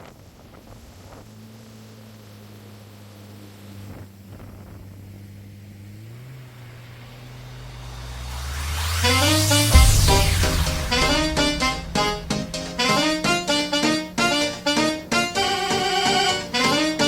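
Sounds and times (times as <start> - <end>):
vehicle engine running: 0.5 - 17.0.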